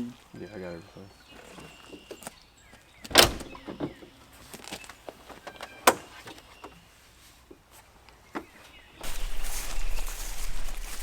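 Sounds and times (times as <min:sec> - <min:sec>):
vehicle doors slamming: 0:03.1 - 0:03.9
handling clicks and rustles: 0:09.0 - 0:11.0.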